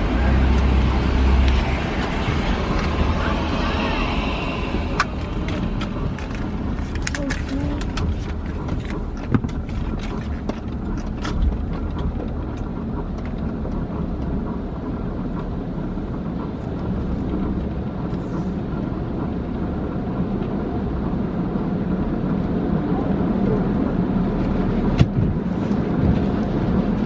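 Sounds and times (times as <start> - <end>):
car wash low rumble: 0.0 - 27.0
sharp clicks and knocks: 4.9 - 15.6.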